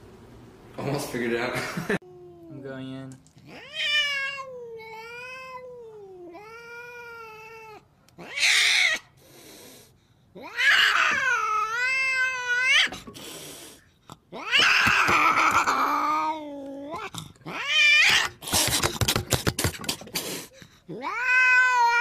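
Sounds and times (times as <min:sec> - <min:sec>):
cat yowling: 0:03.4 - 0:09.1, 0:10.4 - 0:13.0, 0:14.3 - 0:18.6, 0:20.9 - 0:22.0.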